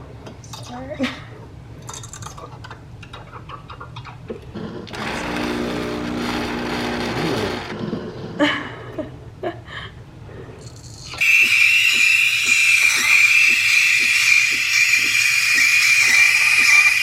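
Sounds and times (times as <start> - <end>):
milk frothing squeaks: 11.0 - 17.0
steam wand hissing: 11.1 - 17.0.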